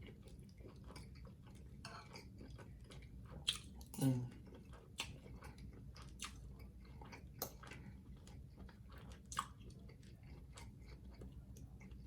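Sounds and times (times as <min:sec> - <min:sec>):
person chewing food: 0:00.0 - 0:12.0
wet mouth clicks and smacks: 0:03.5 - 0:03.8, 0:05.0 - 0:05.2, 0:06.2 - 0:06.4, 0:09.3 - 0:09.6.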